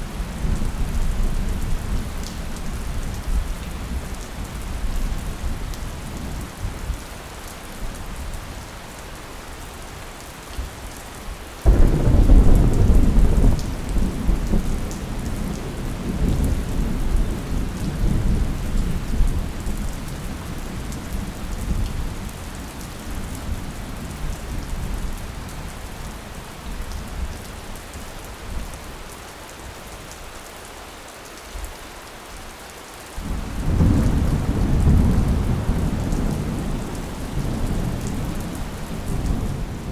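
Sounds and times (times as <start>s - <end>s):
steady rain: 0.0s - 39.9s
thunder rumbling: 11.7s - 19.7s, 33.2s - 39.9s.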